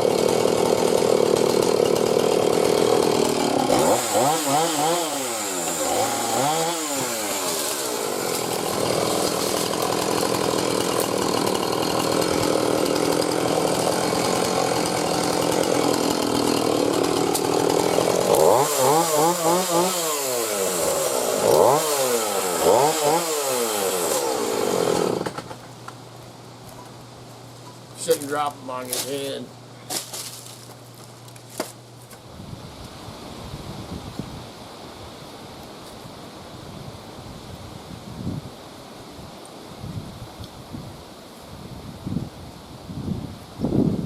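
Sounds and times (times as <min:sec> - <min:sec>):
chainsaw cutting wood: 0:00.0 - 0:25.7, 0:28.0 - 0:31.8.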